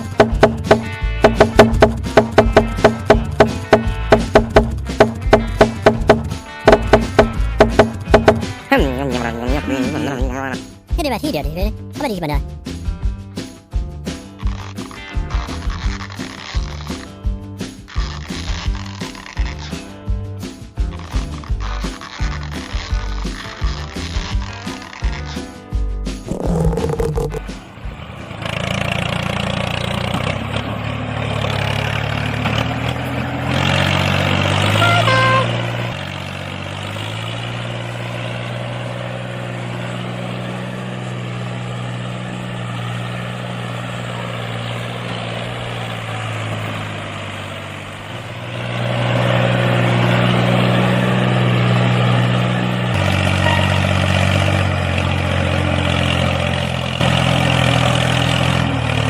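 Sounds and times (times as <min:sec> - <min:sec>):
small tractor motor humming: 0:00.0 - 0:10.2, 0:26.3 - 0:59.0.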